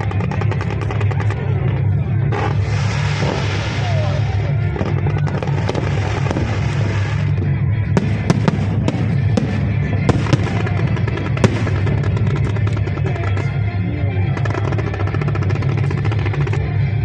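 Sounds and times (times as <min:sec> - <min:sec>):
fireworks bursting and crackling: 0:00.0 - 0:17.0
loud show music: 0:00.0 - 0:17.0.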